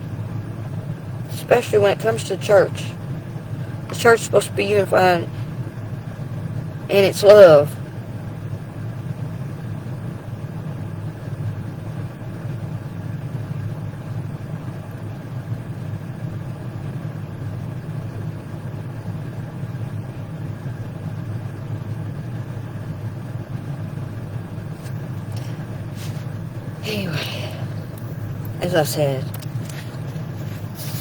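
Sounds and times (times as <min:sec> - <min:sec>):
low mechanical hum: 0:00.0 - 0:31.0.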